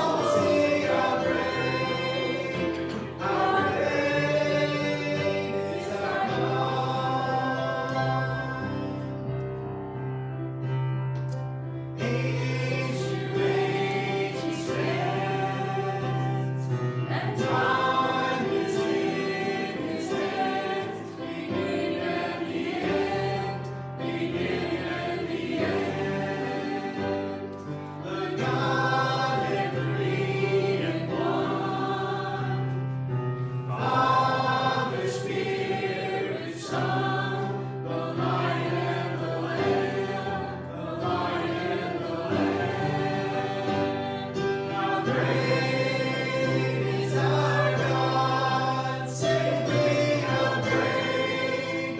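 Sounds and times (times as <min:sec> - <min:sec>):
group of voices singing: 0:00.0 - 0:09.4, 0:11.9 - 0:51.9.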